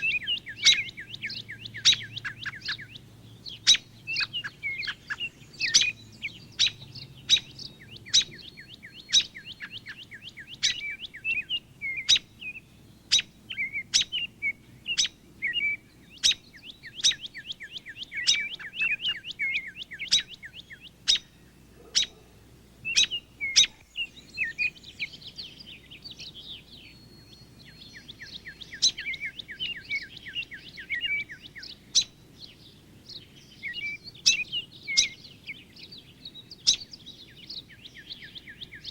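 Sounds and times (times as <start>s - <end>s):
songbirds singing and trilling: 0.0s - 38.9s.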